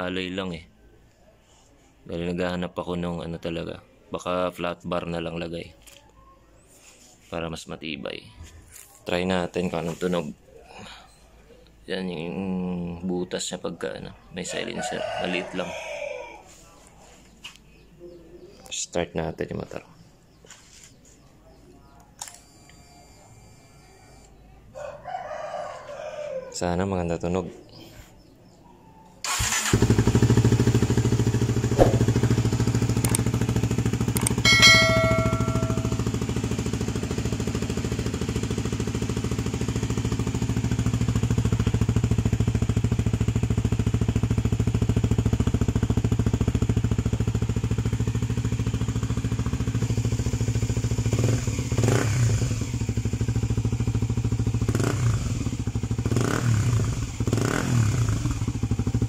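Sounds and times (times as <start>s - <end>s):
motorcycle engine starting and idling: 29.2s - 59.0s
high-pitched tone: 34.5s - 36.2s.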